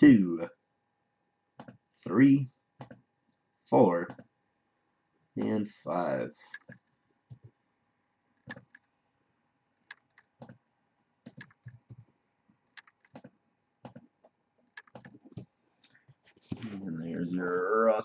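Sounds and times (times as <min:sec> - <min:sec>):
computer keyboard clicking: 0:11.3 - 0:12.0, 0:12.8 - 0:14.0, 0:14.7 - 0:15.4.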